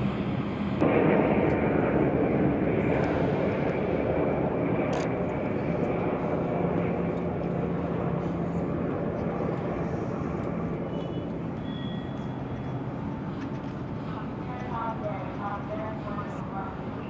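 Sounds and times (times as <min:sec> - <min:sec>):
jet aircraft engine rush: 0:00.0 - 0:17.0.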